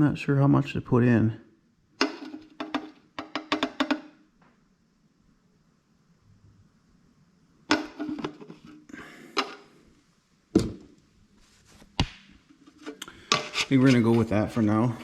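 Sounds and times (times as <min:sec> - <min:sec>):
scraping and rustling: 0:07.7 - 0:09.8, 0:11.3 - 0:15.0.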